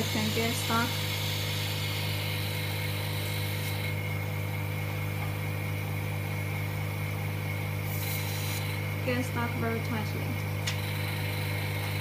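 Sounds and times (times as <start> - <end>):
high hiss: 0.0 - 4.0
vacuum pump humming: 0.0 - 12.0.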